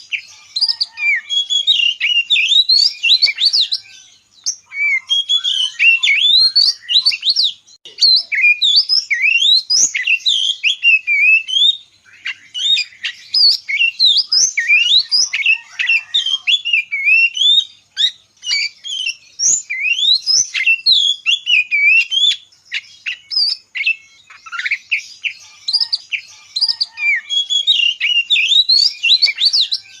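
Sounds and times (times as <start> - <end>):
birds chirping and singing: 0.0 - 30.0.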